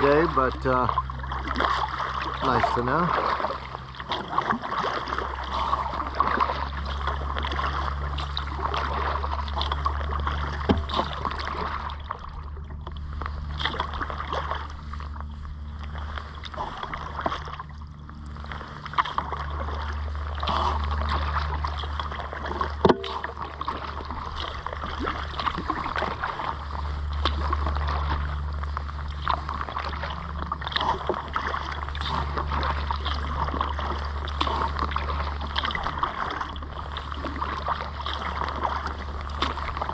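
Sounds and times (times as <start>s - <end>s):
low rumble: 0.0s - 39.9s
paddle splashing in water: 0.0s - 39.9s
water dripping off paddle: 15.8s - 39.8s.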